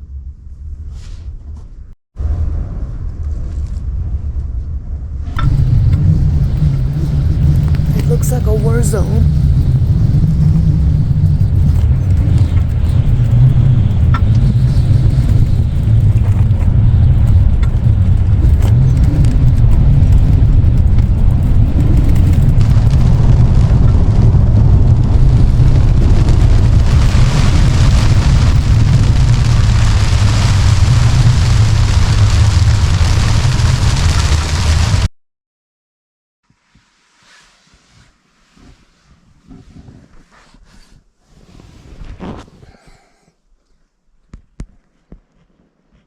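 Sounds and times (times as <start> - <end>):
storm wind buffeting microphone: 2.2 - 35.1
hiss of gusting wind: 5.4 - 35.1.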